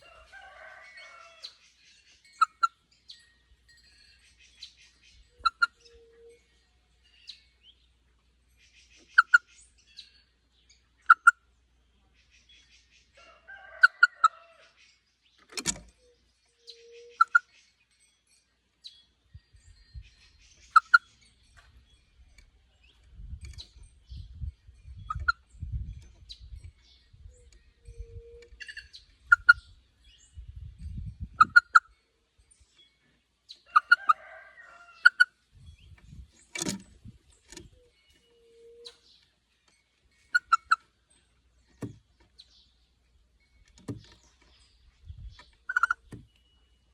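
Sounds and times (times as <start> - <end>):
buzzy rattling bird calls: 19.6 - 30.5, 35.1 - 46.1.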